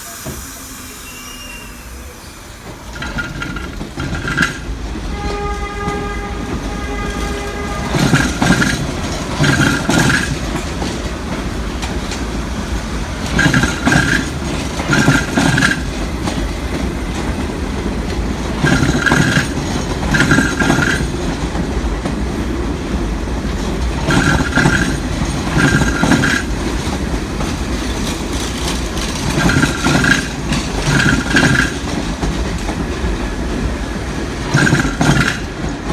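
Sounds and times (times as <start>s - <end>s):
multi-tone train horn: 0.0s - 3.0s, 5.0s - 9.6s
train rumbling: 0.0s - 35.9s
rhythmic wheel knocking: 7.8s - 12.3s, 13.2s - 16.5s, 17.1s - 22.2s, 23.4s - 35.9s.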